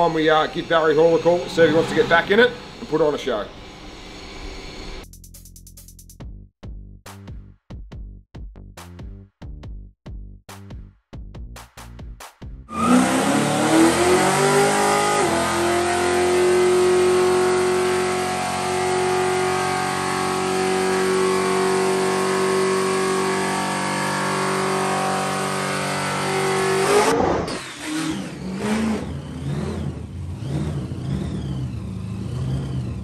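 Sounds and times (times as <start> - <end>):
engine revving high: 0.0 - 5.0, 12.7 - 33.0.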